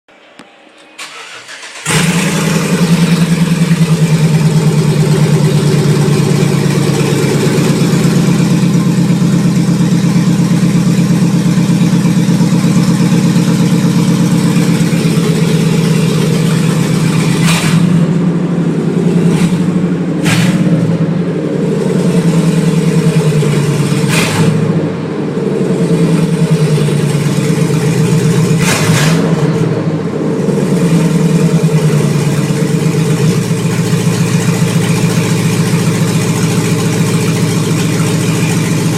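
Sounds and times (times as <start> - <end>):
engine cranking: 1.0 - 11.8
sharp exhaust cracks: 1.0 - 29.7
loud throbbing engine idle: 1.2 - 38.9.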